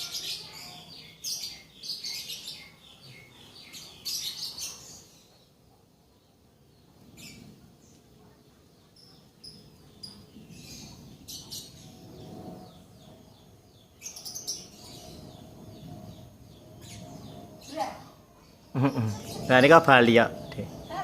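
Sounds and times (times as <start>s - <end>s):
birds chirping: 0.0s - 21.0s
low background rumble: 9.5s - 21.0s.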